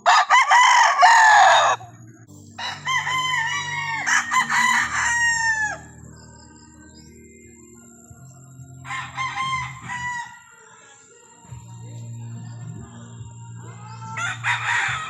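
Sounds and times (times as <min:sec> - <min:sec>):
roosters crowing: 0:00.0 - 0:02.0, 0:02.6 - 0:06.4, 0:08.7 - 0:15.0.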